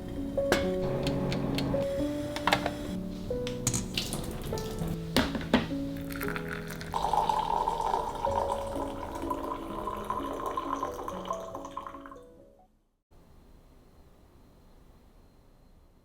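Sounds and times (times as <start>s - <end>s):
soft background music: 0.0s - 12.7s
water running from a tap: 6.4s - 12.0s.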